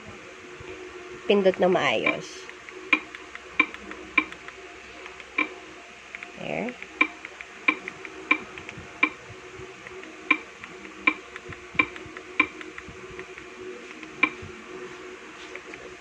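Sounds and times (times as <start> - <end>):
mouse clicks: 1.5 - 9.2, 9.8 - 14.4.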